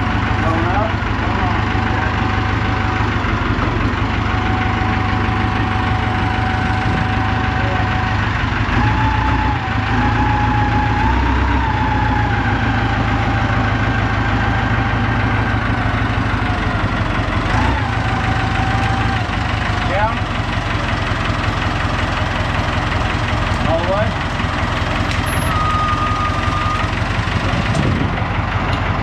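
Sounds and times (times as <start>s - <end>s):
engine idling: 0.0s - 29.0s
whining tone: 4.3s - 20.2s, 21.2s - 27.9s.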